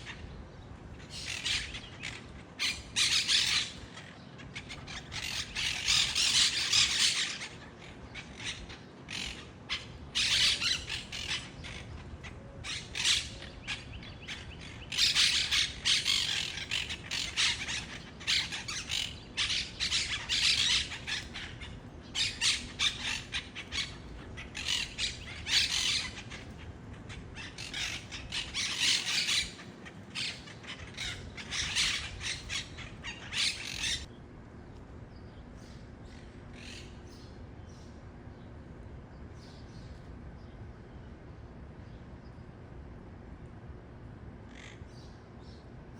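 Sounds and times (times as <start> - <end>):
parakeets screeching squawks: 0.0 - 34.1, 36.1 - 37.3, 44.5 - 45.0.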